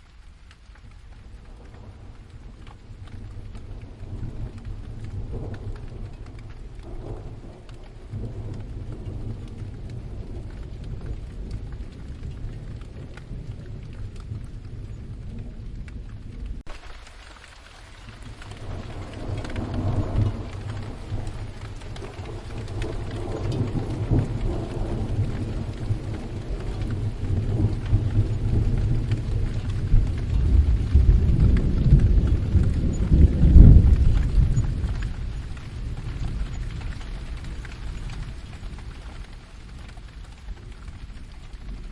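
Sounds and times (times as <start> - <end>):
steady rain falling: 0.0 - 41.9
thunder rolling: 1.1 - 16.8, 17.9 - 41.9.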